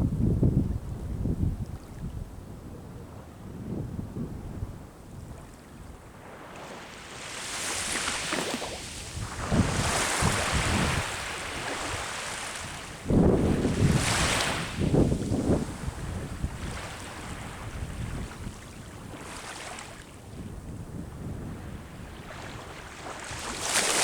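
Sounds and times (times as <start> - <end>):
wind rumbling on microphone: 0.0 - 24.0
ocean waves breaking on shore: 5.3 - 20.4, 21.5 - 24.0.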